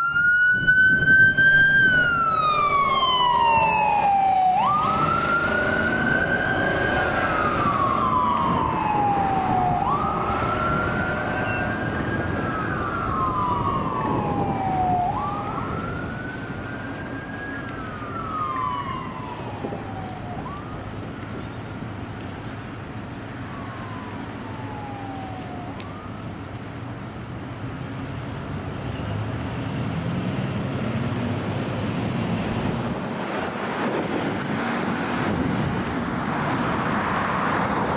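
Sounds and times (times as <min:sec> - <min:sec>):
wailing siren: 0:00.0 - 0:26.6
engine and road rumble: 0:00.0 - 0:37.9.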